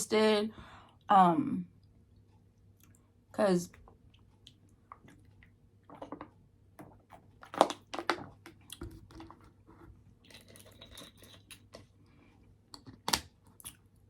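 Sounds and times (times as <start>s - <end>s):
chewing and crunching food: 3.7s - 14.0s.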